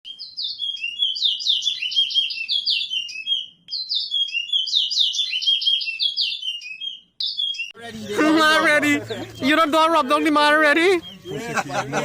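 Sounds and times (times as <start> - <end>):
finch singing whistled notes: 0.1 - 7.8, 10.7 - 11.6.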